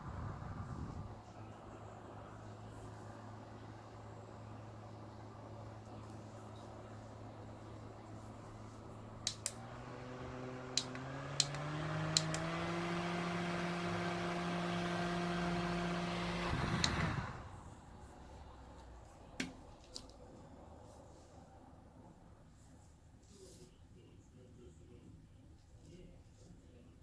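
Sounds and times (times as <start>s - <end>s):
electric fan motor hum: 0.0s - 19.5s
fan button clicks: 9.2s - 9.7s, 10.7s - 12.6s, 16.6s - 17.3s.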